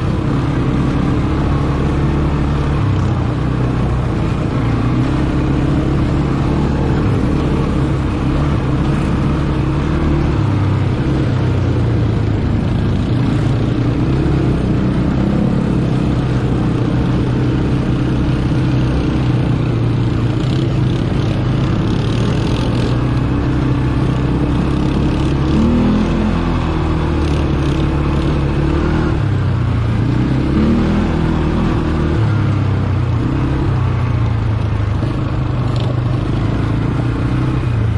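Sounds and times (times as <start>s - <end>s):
atv engine running: 0.0s - 37.9s.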